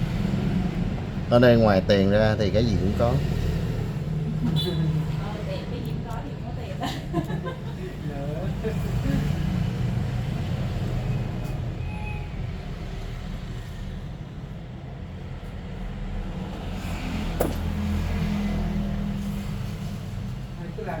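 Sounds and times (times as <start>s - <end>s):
sharp click: 17.4s - 17.8s.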